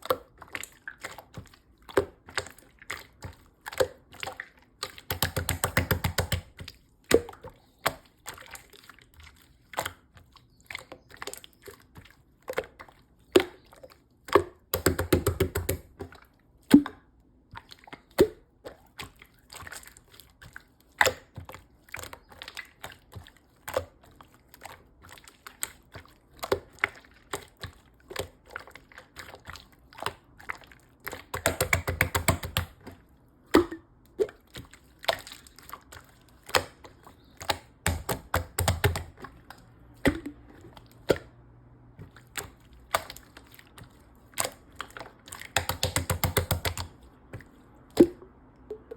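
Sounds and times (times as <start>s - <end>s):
slime clicking and popping: 14.4s - 15.9s, 31.2s - 32.8s, 37.4s - 39.2s, 45.4s - 46.9s.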